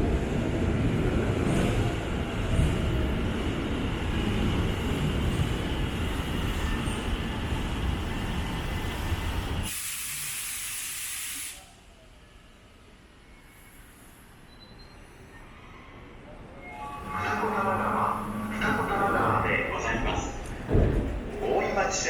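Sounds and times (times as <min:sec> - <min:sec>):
train rumbling: 0:00.0 - 0:09.8, 0:15.4 - 0:22.0
pneumatic air hiss: 0:09.7 - 0:11.7.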